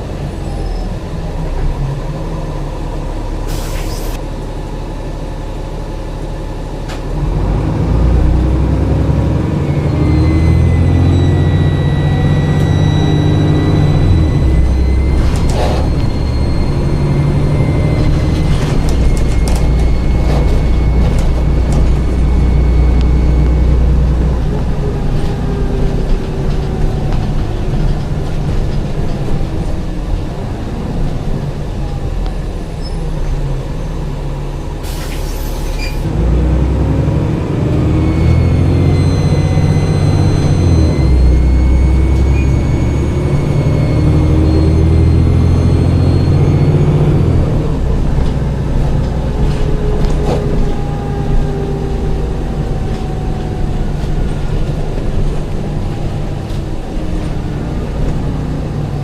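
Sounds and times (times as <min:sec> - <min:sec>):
bus diesel engine drone: 0:00.0 - 0:59.0
air hiss: 0:03.5 - 0:04.2
high turbo whistle: 0:09.3 - 0:25.7, 0:37.7 - 0:47.8.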